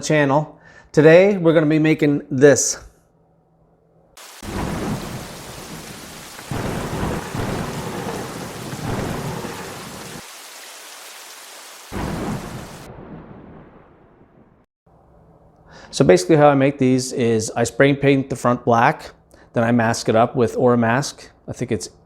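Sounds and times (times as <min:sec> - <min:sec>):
rolling thunder: 0:04.2 - 0:10.3, 0:11.9 - 0:14.7
steady rain: 0:04.2 - 0:13.2.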